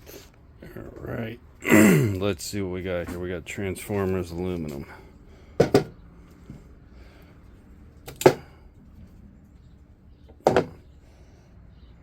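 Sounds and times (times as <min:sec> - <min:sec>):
heavy scrap metal knocking: 0:05.6 - 0:06.0.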